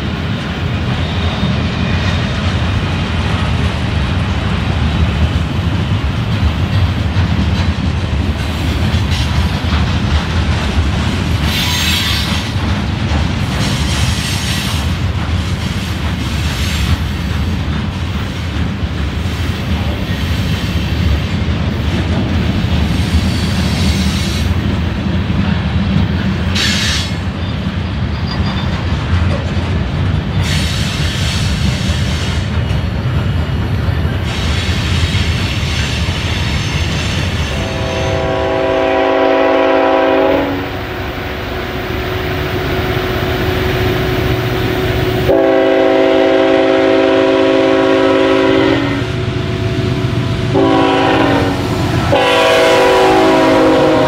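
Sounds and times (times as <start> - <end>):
freight train rumbling past: 0.0 - 54.0
train air horn blast: 37.5 - 49.8, 50.4 - 54.0.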